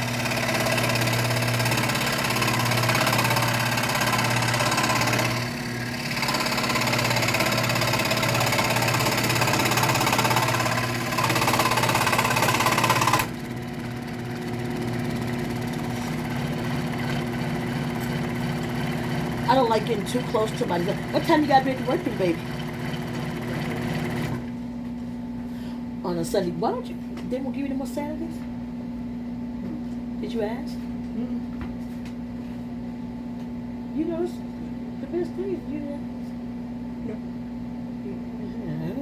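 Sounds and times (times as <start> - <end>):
saw motor hum: 0.0 - 24.6.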